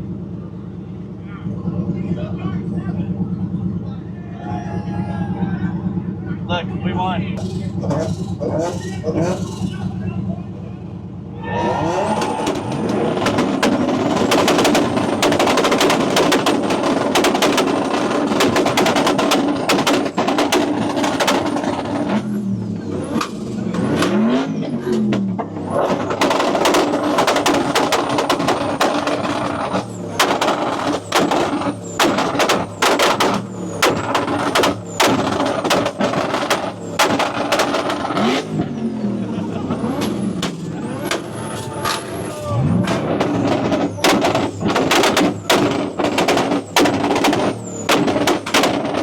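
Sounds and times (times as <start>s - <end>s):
exhaust pops and bangs: 7.4s - 9.8s, 11.8s - 38.8s, 39.6s - 49.0s
engine revving at rev limiter: 11.6s - 49.0s.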